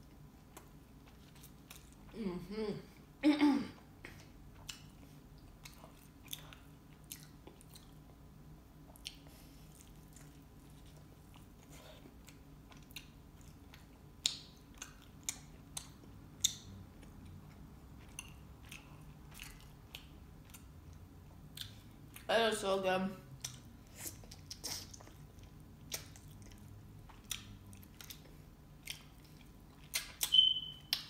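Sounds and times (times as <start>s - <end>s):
chewing and biting: 4.6s - 8.2s, 8.8s - 22.3s, 23.4s - 31.0s.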